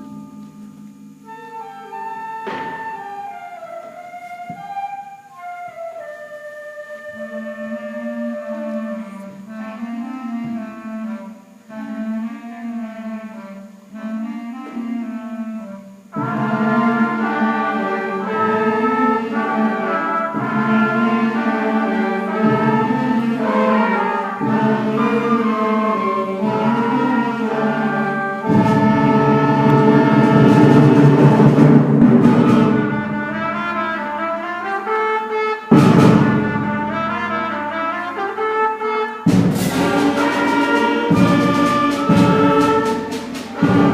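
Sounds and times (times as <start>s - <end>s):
concert band playing: 13.4s - 43.9s.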